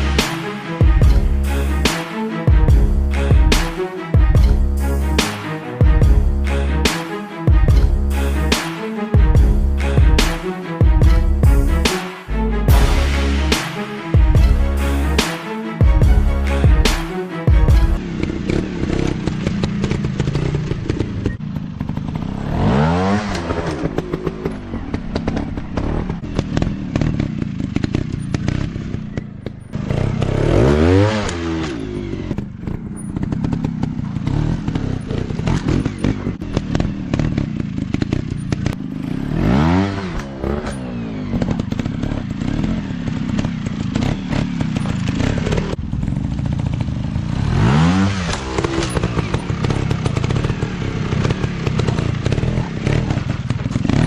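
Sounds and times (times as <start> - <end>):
dirt bike engines revving: 17.7 - 54.0.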